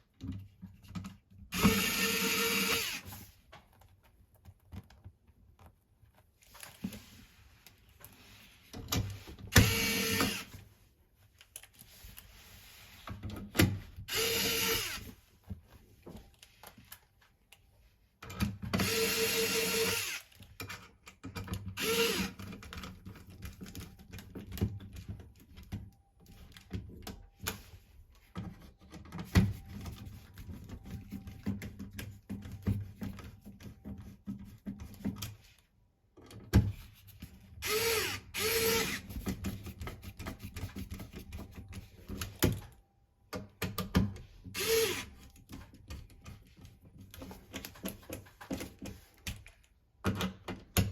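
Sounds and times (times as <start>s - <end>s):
cordless power driver running: 1.5s - 3.0s, 9.6s - 10.5s, 14.1s - 15.0s, 21.8s - 22.4s, 37.6s - 39.0s, 44.6s - 45.1s.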